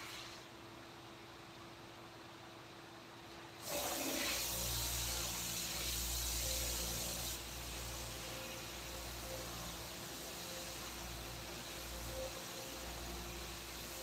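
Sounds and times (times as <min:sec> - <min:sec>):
steady hiss: 0:03.6 - 0:14.0.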